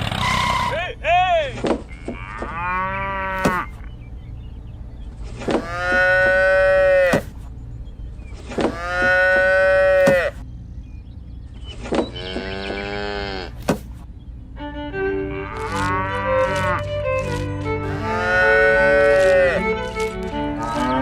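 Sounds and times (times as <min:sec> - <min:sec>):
cow mooing: 0:01.9 - 0:03.7, 0:05.6 - 0:07.2, 0:08.7 - 0:10.4, 0:12.2 - 0:13.6, 0:15.2 - 0:16.8, 0:17.8 - 0:19.6, 0:20.5 - 0:21.0
steady low hum: 0:02.9 - 0:21.0.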